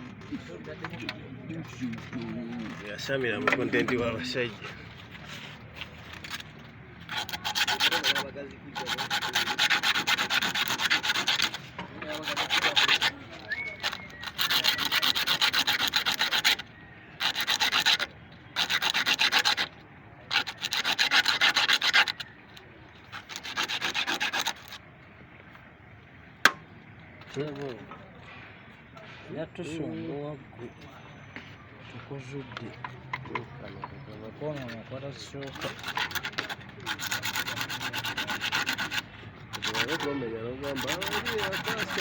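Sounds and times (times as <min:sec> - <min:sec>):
abrasive rubbing: 0:05.0 - 0:22.4, 0:23.0 - 0:24.8, 0:33.2 - 0:42.0.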